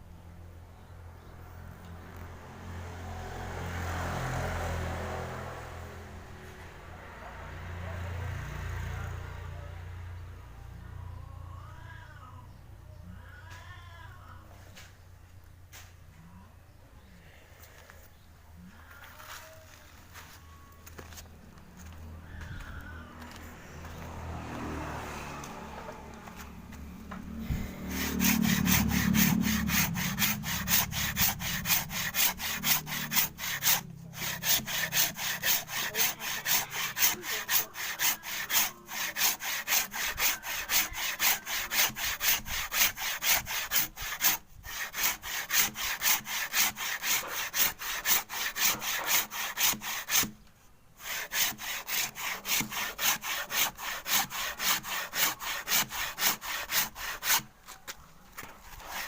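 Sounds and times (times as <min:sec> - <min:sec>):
hand saw cutting wood: 0:23.2 - 0:59.0.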